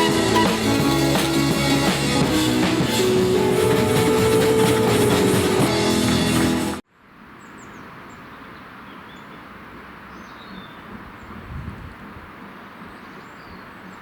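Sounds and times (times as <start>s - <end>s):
small birds chirping: 7.4s - 11.4s, 12.8s - 14.0s.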